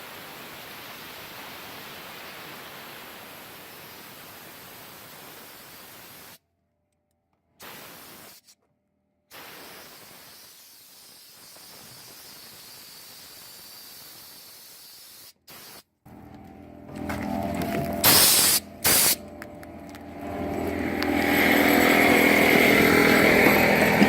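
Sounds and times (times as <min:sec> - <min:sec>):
compressed air blowgun hissing: 0:07.6 - 0:08.6, 0:09.3 - 0:15.9, 0:18.0 - 0:19.2.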